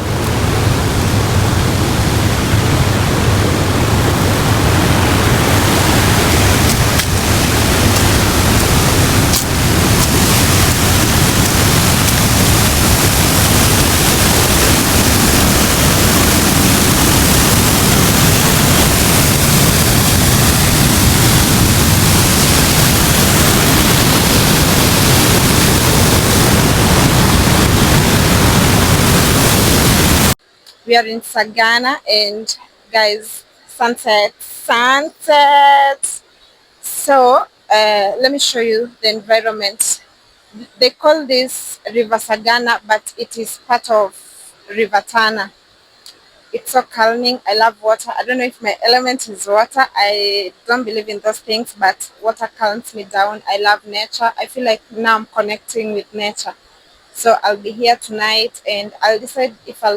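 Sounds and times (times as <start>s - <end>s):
river water rushing: 0.0s - 30.4s.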